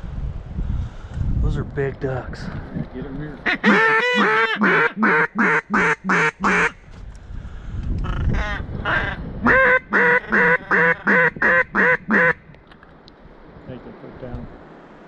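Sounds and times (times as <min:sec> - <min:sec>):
duck call quacks: 0:03.4 - 0:06.8, 0:08.0 - 0:12.4.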